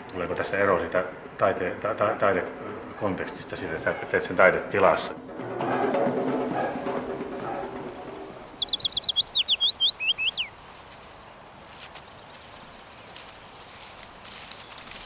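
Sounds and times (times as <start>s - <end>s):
songbird singing: 3.7s - 15.0s
faint high bird calls: 5.0s - 11.3s, 11.9s - 15.0s.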